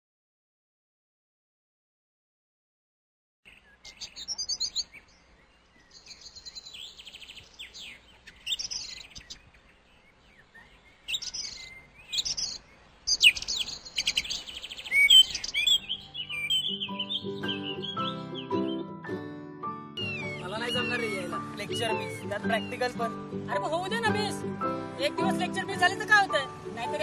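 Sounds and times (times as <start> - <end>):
birds chirping and trilling: 3.5 - 27.0
music: 15.6 - 27.0.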